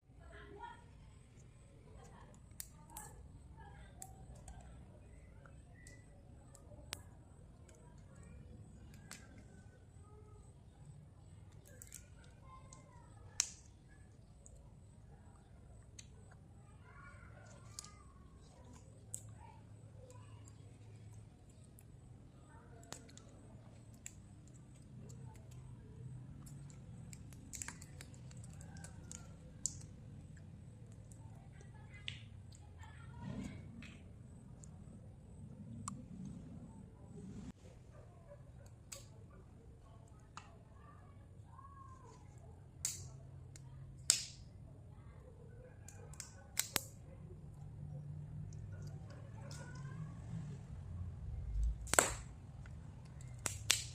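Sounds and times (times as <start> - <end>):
chewing with crisp clicks: 17.3 - 32.7.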